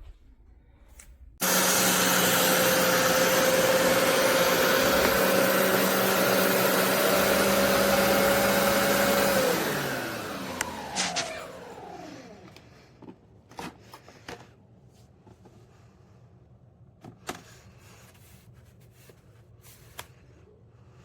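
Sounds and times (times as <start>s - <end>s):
carpet cleaner motor running: 1.4s - 13.1s.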